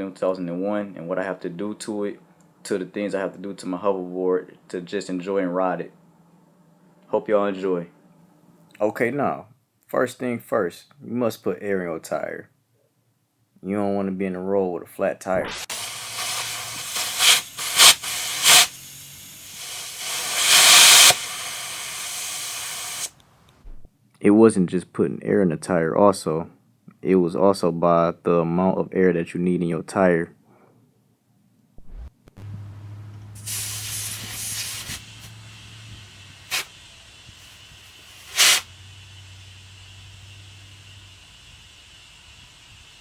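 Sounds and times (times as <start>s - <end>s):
steady low hum: 0.0s - 8.8s, 31.8s - 43.0s
compressed air hissing: 15.4s - 23.2s, 33.3s - 43.0s
short loud air blasts: 15.4s - 23.2s, 33.3s - 43.0s.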